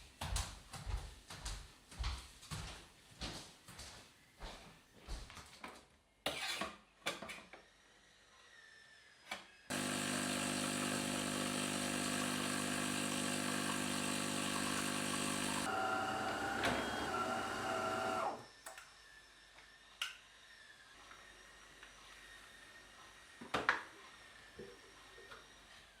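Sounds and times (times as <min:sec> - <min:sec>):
small electric motor running: 0:09.7 - 0:22.8.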